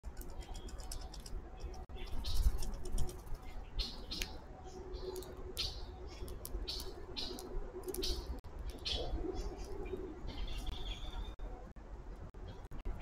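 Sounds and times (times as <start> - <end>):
birds chirping: 0.1 - 11.7.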